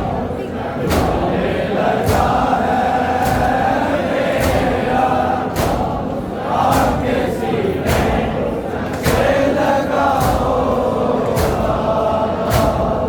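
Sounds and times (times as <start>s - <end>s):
men chanting in unison: 0.0s - 13.0s.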